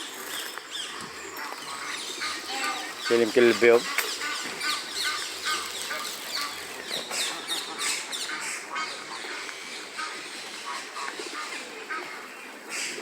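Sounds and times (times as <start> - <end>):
birds calling: 0.0 - 13.0
ducks quacking: 1.2 - 13.0.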